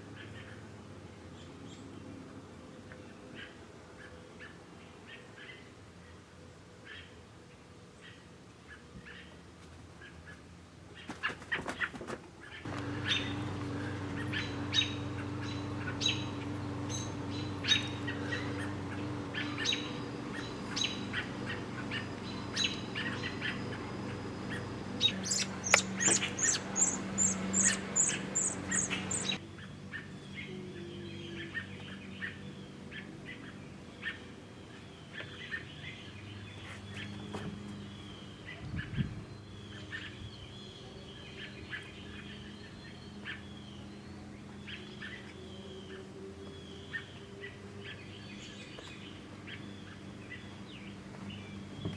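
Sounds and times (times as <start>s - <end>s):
birds chirping: 10.9s - 51.9s
low steady hum: 12.7s - 35.0s.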